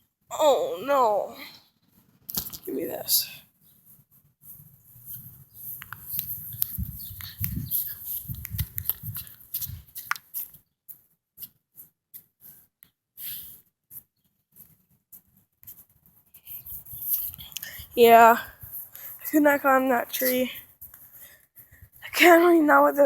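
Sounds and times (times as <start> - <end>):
rustling and scraping on tree: 3.7 - 10.6, 16.4 - 19.3
small clicks: 5.8 - 10.6.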